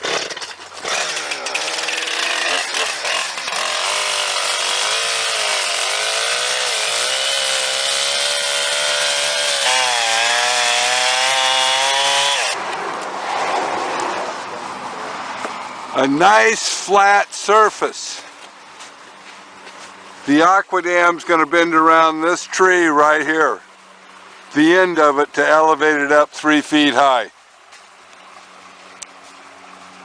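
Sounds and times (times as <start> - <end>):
chainsaw cutting wood: 0.0 - 12.6.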